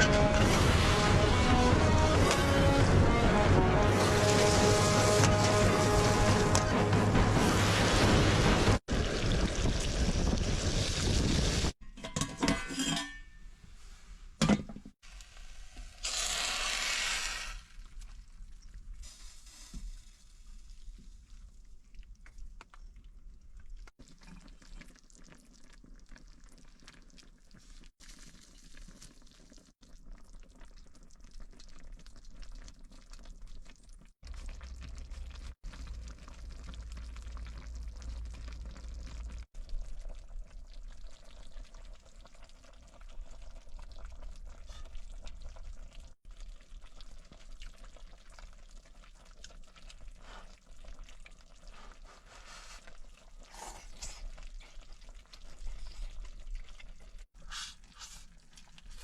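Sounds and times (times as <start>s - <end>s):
liquid poured into a pot: 17.7s - 59.0s.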